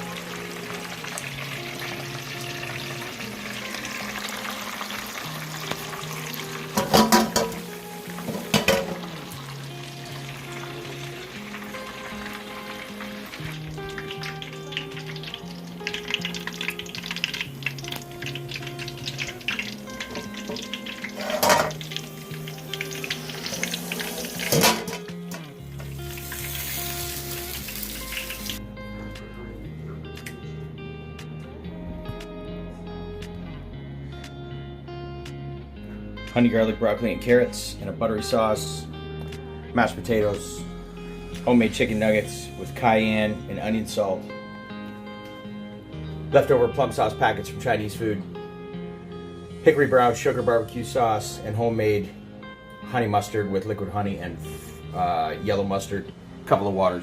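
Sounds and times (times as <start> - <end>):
food sizzling in a pan: 0.0 - 28.6, 54.5 - 55.3
background music: 0.0 - 57.0.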